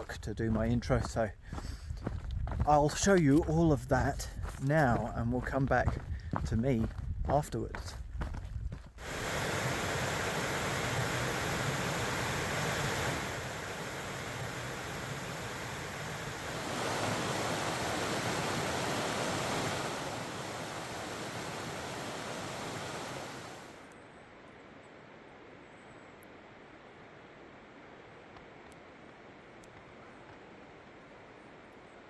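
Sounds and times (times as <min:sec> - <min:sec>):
stream rushing: 0:09.0 - 0:23.9.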